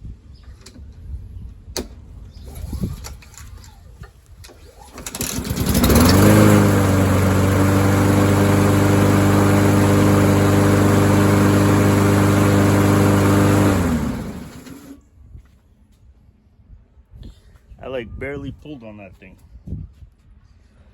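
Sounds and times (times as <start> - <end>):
lawn mower engine running: 4.8 - 15.0.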